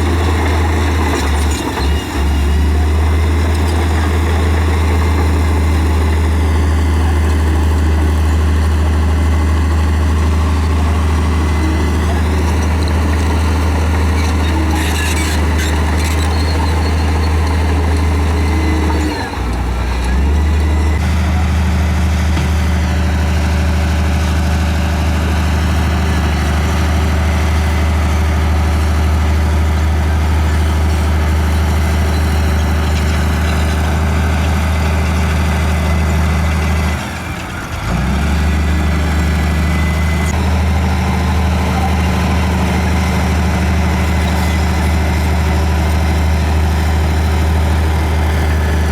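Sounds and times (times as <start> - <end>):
bulldozer diesel engine droning: 0.0 - 48.9.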